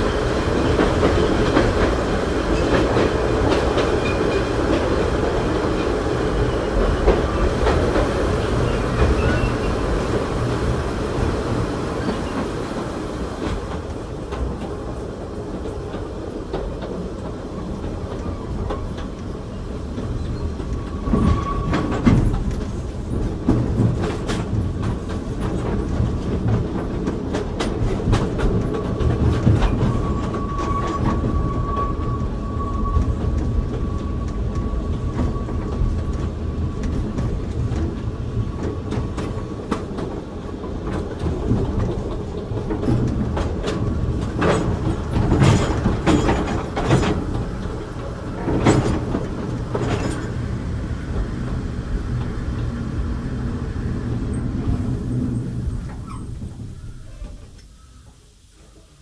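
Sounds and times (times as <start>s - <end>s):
train running rumble: 0.0s - 59.0s
wheels clicking over rail joints: 33.0s - 59.0s
faint thin squeal: 55.7s - 58.1s.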